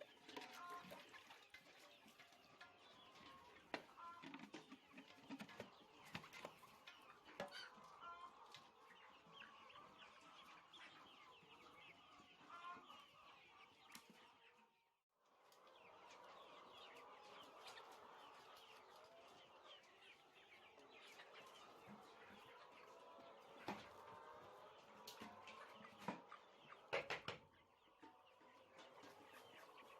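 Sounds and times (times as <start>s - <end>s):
chickens peeping and clucking: 0.0s - 29.9s.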